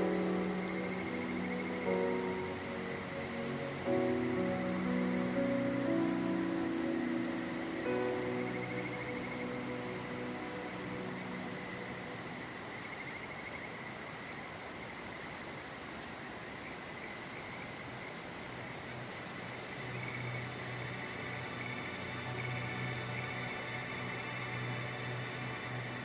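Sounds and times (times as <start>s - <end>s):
river water rushing: 0.0s - 14.0s
insects chirring: 0.0s - 15.3s.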